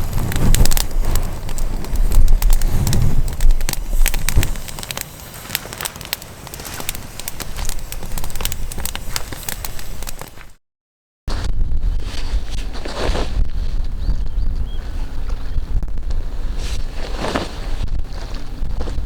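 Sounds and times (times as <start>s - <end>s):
low rumble: 0.0s - 10.3s
wood fire crackling: 0.0s - 10.6s.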